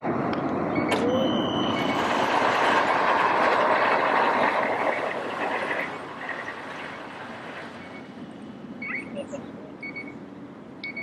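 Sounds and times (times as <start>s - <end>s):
jet engines roaring: 0.0s - 9.6s
thin high whine: 0.9s - 2.9s.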